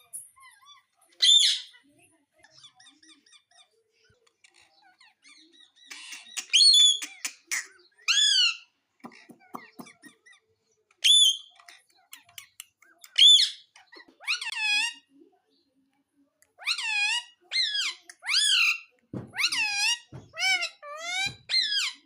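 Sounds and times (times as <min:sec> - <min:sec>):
parrot squawking: 0:04.5 - 0:15.1, 0:16.6 - 0:22.0.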